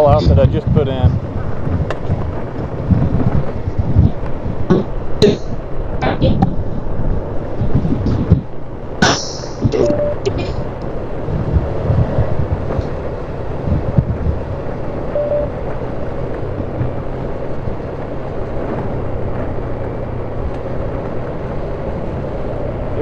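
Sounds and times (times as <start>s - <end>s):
low knocks and thumps: 0.0s - 15.0s
off-road vehicle engine running: 0.0s - 23.0s
wind buffeting microphone: 0.0s - 23.0s.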